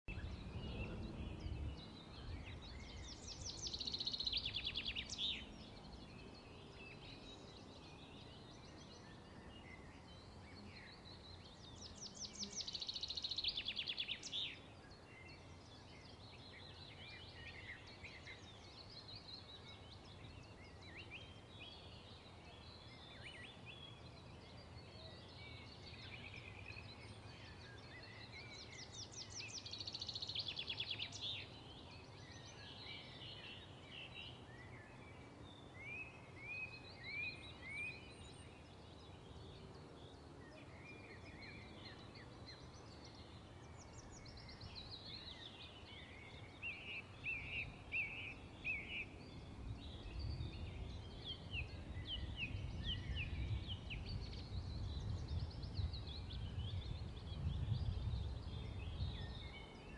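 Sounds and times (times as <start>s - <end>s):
birds chirping: 0.1s - 59.9s.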